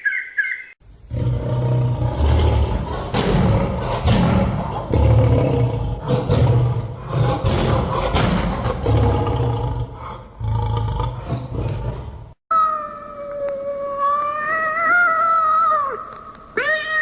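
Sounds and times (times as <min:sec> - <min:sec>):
large animal roaring: 0:01.1 - 0:12.2.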